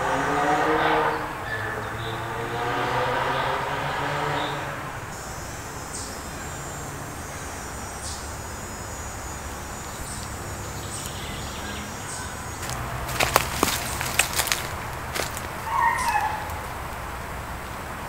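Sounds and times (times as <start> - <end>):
insects trilling: 5.1 - 17.8
insect chirp: 5.1 - 18.0.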